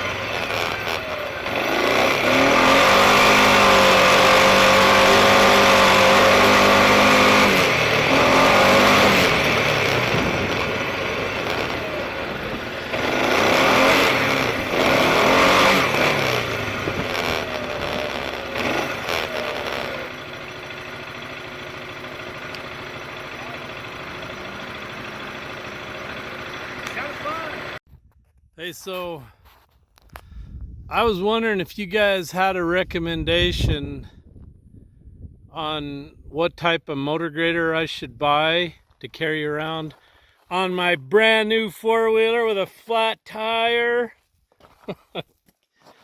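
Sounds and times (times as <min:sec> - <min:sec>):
atv engine revving: 0:00.0 - 0:27.8
wind rush over microphone: 0:30.2 - 0:31.3, 0:32.7 - 0:36.3.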